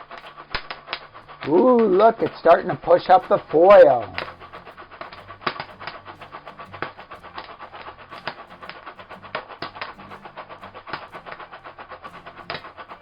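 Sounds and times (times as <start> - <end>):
pan sizzling and rattling: 0.0 - 13.0
popcorn kernels popping: 0.0 - 13.0.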